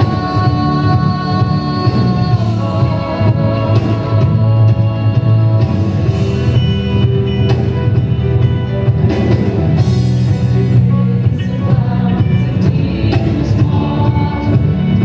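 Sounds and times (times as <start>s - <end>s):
drums: 0.0s - 15.0s
guitar: 0.0s - 15.0s
worship band playing: 0.0s - 15.0s.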